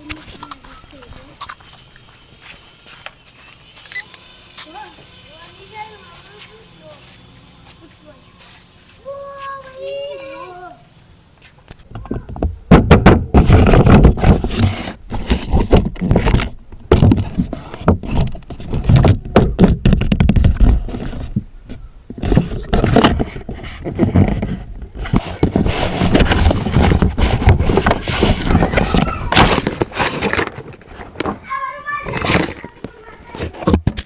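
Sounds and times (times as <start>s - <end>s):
scraping and rattling: 22.1s - 34.0s.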